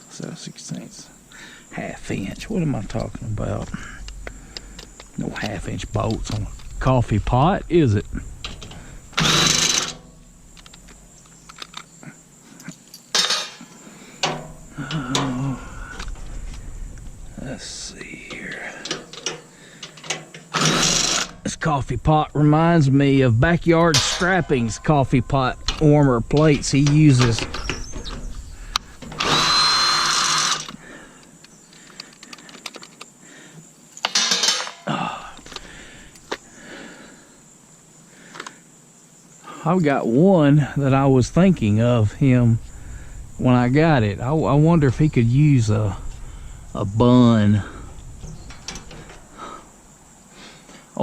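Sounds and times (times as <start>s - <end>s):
power driver running on bolt: 8.0s - 11.9s, 18.3s - 21.5s, 23.8s - 30.9s
loud clatter of metal tools: 8.4s - 11.9s, 12.7s - 16.6s, 18.3s - 21.5s, 23.8s - 30.8s, 34.0s - 34.9s, 47.7s - 49.5s
metal tools clinking and rattling: 8.4s - 12.0s, 12.6s - 17.2s, 18.3s - 21.5s, 23.7s - 30.8s, 34.0s - 34.9s, 47.6s - 49.5s.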